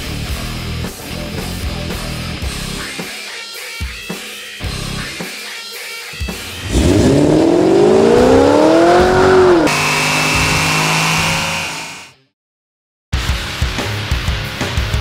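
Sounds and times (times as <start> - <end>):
rock music: 0.0 - 11.9, 13.2 - 15.0
car engine accelerating hard: 6.4 - 12.0
engine high revs whine: 6.4 - 12.2.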